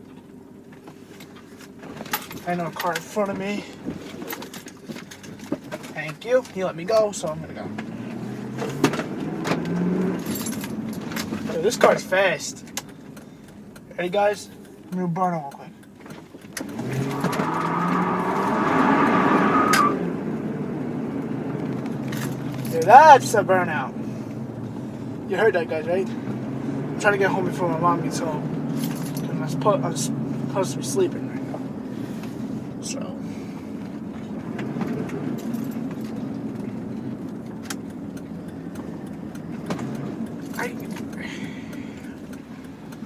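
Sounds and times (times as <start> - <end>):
engine revving: 6.2 - 12.9, 16.5 - 43.0
tyres squealing: 16.6 - 20.1.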